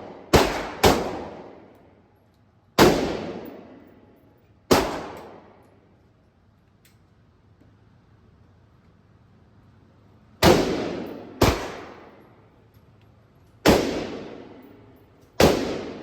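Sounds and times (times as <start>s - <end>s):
gunshots echoing: 0.0s - 1.7s, 2.8s - 3.9s, 4.7s - 5.6s, 10.4s - 12.2s, 13.6s - 14.8s, 15.4s - 16.0s.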